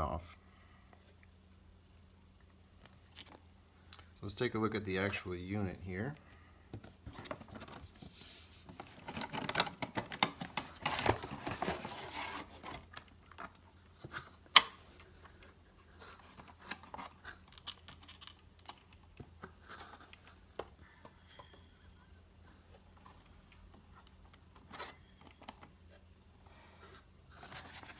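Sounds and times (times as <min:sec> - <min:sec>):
packaging crinkling and tearing: 0:08.8 - 0:14.3.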